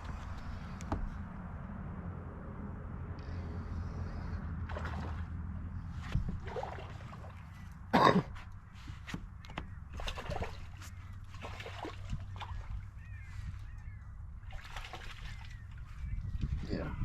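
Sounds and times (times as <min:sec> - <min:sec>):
water splashing and sloshing: 0:03.7 - 0:16.8.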